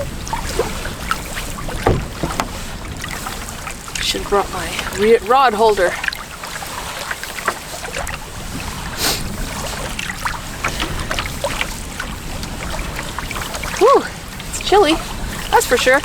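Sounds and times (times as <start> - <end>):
small water sounds: 0.0 - 16.0
light knocks: 1.8 - 2.6
wind buffeting microphone: 1.8 - 3.0.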